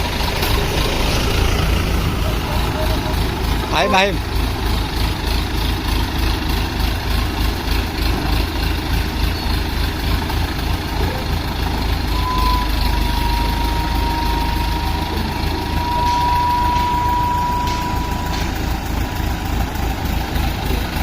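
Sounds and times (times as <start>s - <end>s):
diesel engine idling: 0.0s - 21.0s
high-pitched tone: 2.0s - 4.2s, 12.1s - 19.0s.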